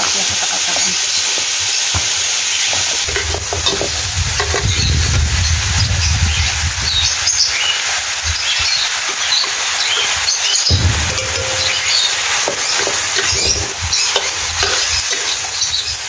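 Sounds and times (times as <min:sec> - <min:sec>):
vegetables sizzling in a wok: 0:00.0 - 0:04.2.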